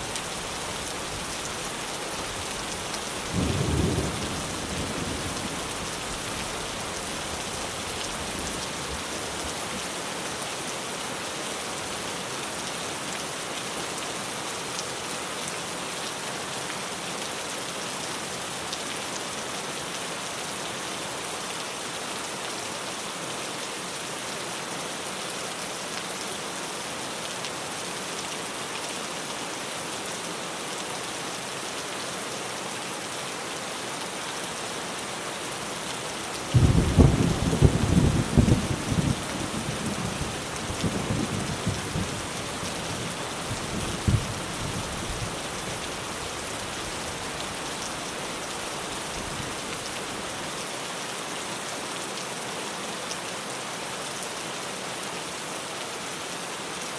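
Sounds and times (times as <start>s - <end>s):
heavy rain on a tin roof: 0.0s - 56.9s.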